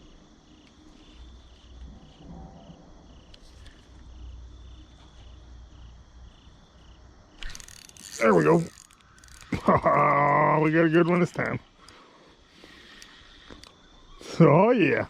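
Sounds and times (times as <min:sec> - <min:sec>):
insects chirping: 0:00.0 - 0:15.0
low rumble: 0:01.7 - 0:03.4.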